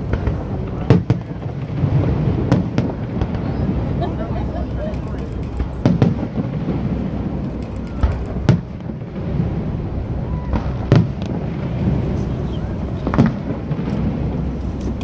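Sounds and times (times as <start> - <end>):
firework shells booming: 0.0 - 15.0
low rumble: 5.4 - 15.0.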